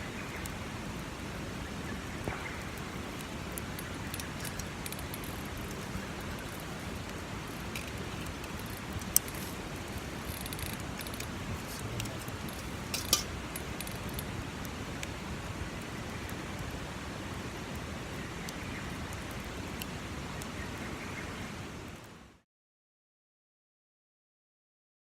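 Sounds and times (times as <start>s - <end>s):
campfire crackling: 0.0s - 22.2s
steady hiss: 0.0s - 22.4s.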